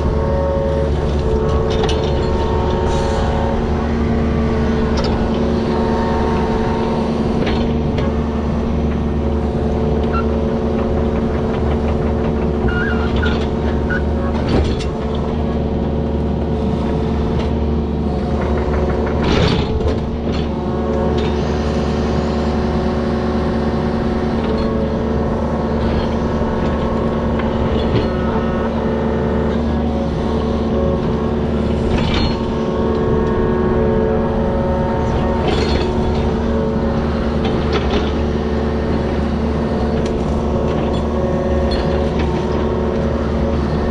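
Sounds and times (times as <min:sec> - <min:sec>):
diesel engine running under load: 0:00.0 - 0:43.9
machine knocks and clanks: 0:07.3 - 0:15.4, 0:18.3 - 0:21.4, 0:35.0 - 0:43.8.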